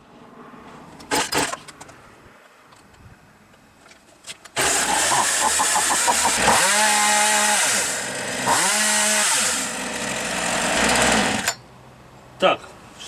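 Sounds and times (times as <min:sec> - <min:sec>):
chainsaw engine revving: 0:04.6 - 0:11.5.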